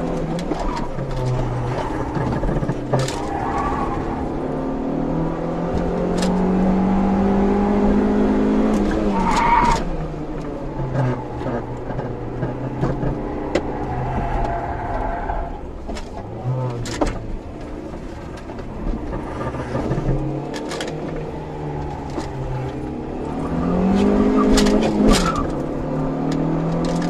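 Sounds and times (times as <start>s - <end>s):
car engine revving: 0.0s - 27.0s
tyre squeal: 0.5s - 4.3s, 9.0s - 9.9s.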